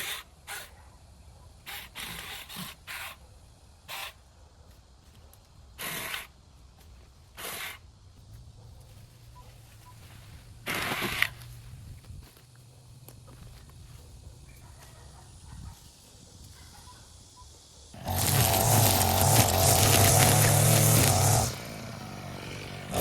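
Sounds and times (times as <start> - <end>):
dry vegetation rustling and crunching: 18.0 - 21.5.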